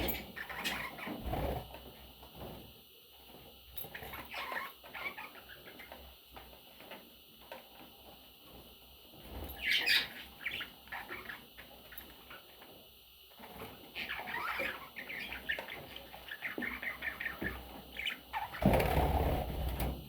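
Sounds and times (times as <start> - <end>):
budgies chirping: 0.0 - 1.6, 9.6 - 12.5, 13.8 - 19.2.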